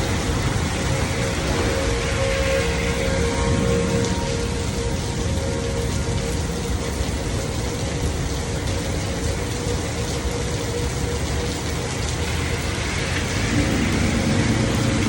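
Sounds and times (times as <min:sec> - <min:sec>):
low rumble: 0:00.0 - 0:07.9, 0:12.0 - 0:15.0
heavy rain falling: 0:00.0 - 0:15.0.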